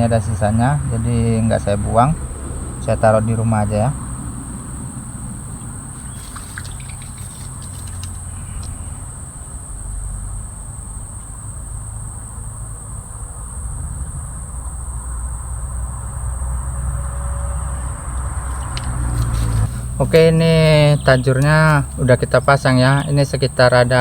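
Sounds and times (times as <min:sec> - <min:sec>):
light clicks and rustles: 0:05.6 - 0:09.0, 0:18.5 - 0:20.3.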